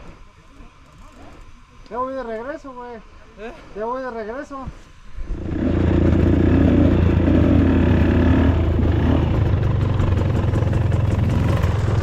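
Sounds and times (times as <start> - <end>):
dirt bike engine running: 5.3 - 12.0.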